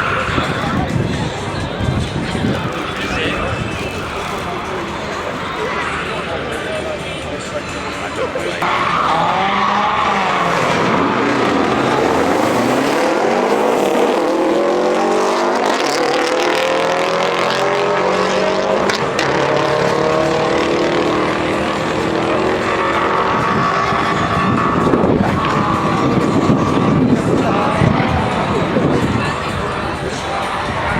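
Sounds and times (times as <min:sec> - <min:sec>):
car engine revving hard: 0:08.6 - 0:30.9.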